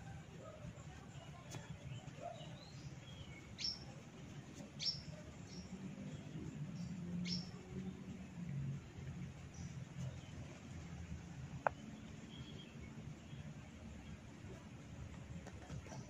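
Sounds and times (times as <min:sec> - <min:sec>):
bird chirping: 0:00.9 - 0:08.0, 0:11.6 - 0:14.2.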